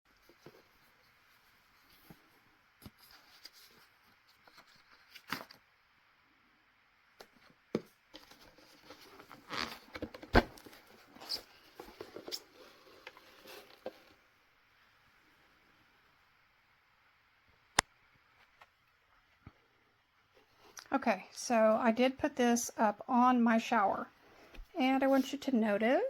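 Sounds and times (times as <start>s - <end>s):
rustling: 0.1s - 5.6s, 7.2s - 14.2s.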